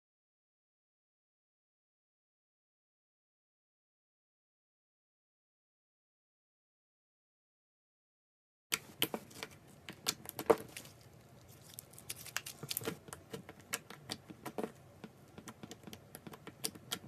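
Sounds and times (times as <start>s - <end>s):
sticky clicks and crackles: 8.7s - 17.0s.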